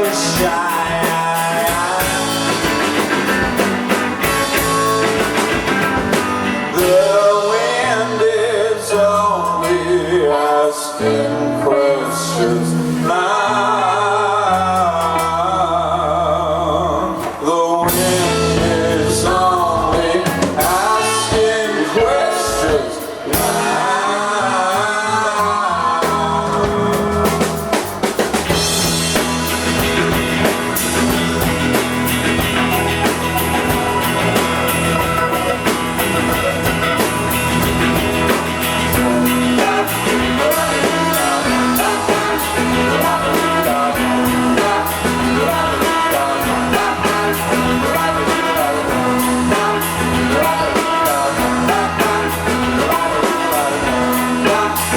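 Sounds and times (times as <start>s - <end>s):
person singing: 0.0s - 3.6s, 6.6s - 54.9s
drums: 0.0s - 54.9s
guitar: 0.0s - 54.9s.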